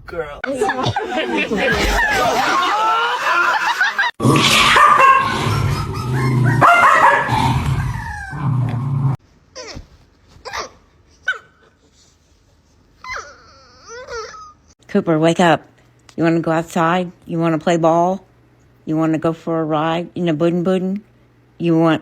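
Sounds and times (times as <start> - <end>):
dogs barking: 1.0 - 8.6
dog yowling: 4.2 - 8.8.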